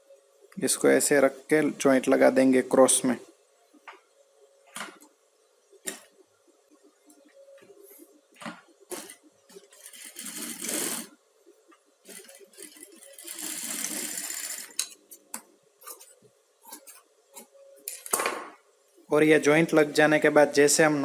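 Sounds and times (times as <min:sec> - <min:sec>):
sewing machine stitching: 0:09.0 - 0:11.1, 0:12.1 - 0:14.8.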